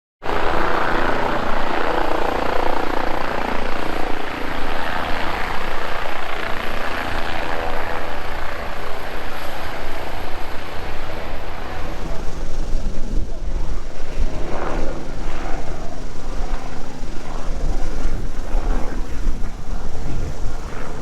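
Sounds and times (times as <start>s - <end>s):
helicopter rotor chop: 0.2s - 21.0s.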